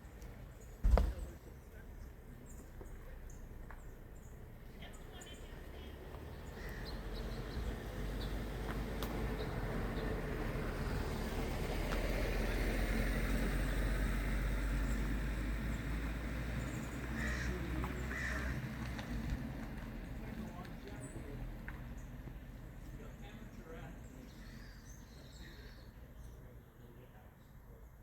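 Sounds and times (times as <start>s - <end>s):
vehicle rumble: 0.0s - 28.0s
woodpecker raspy calls: 6.3s - 8.4s, 16.6s - 19.2s.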